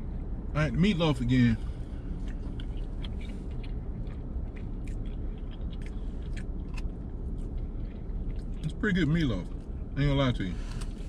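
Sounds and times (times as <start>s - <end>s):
steady low hum: 0.0s - 11.0s
man chewing wet smacks: 2.1s - 9.8s.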